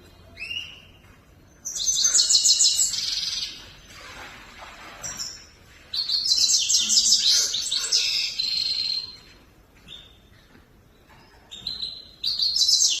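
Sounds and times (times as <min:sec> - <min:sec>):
finch twittering song: 0:11.2 - 0:13.0.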